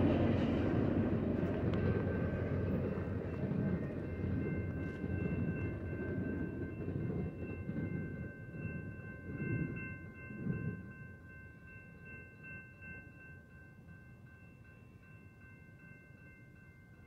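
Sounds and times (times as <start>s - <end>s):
freight train cars rumbling: 0.0s - 11.0s.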